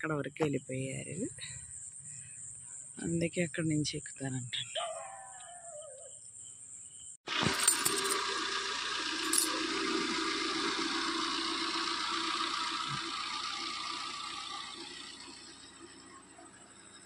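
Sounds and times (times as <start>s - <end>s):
car engine idling: 7.3s - 17.0s.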